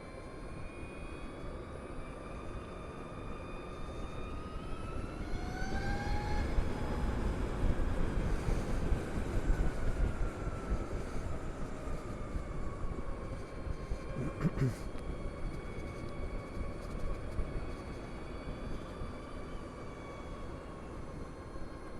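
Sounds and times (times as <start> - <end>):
wind rumble on microphone: 4.2 - 14.1.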